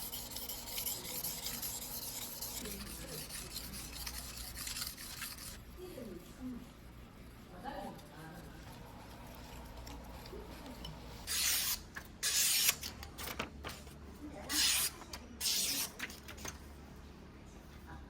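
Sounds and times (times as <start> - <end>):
knife scraping on whetstone: 0.0 - 5.6, 10.7 - 12.9, 14.5 - 16.1.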